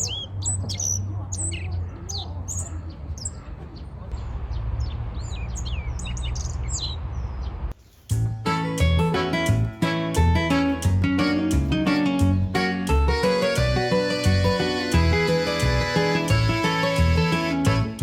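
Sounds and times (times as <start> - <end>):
small birds chirping: 0.0 - 8.1
steady low rumble: 3.0 - 7.8.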